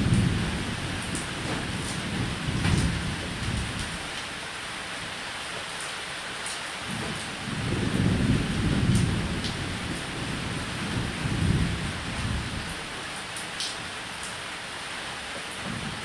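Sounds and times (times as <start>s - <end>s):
low rolling thunder: 0.0s - 4.1s, 6.9s - 13.0s
rain on a roof: 0.0s - 16.0s.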